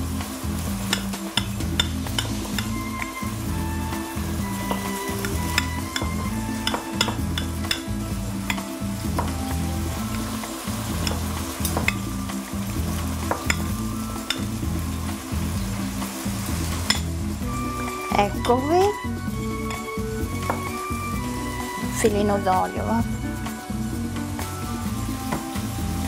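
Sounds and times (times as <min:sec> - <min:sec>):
background music with bass line: 0:00.0 - 0:26.0
metal spoon clinking and scraping bowl: 0:04.6 - 0:07.9, 0:13.3 - 0:13.7, 0:19.6 - 0:20.7.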